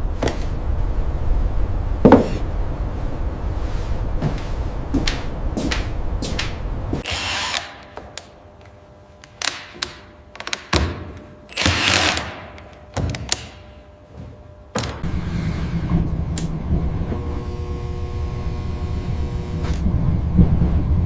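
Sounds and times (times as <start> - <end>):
power tool hum: 7.0 - 8.3, 11.5 - 12.7, 15.0 - 19.9.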